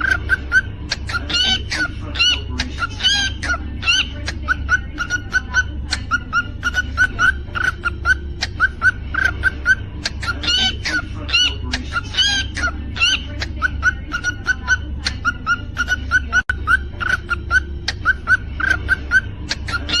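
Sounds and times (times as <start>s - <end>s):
cockatiel chirping: 0.0s - 20.0s
steady low hum: 0.0s - 20.0s.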